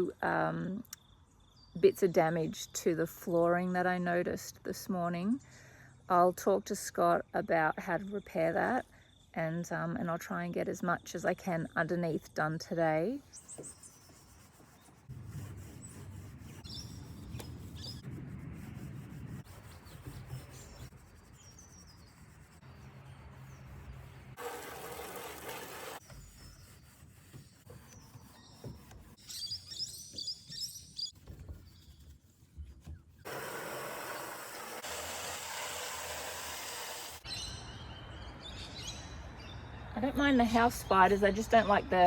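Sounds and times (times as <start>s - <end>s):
outdoor background noise: 0.0s - 42.0s
birds chirping: 15.7s - 18.1s, 19.4s - 24.4s, 26.0s - 32.2s.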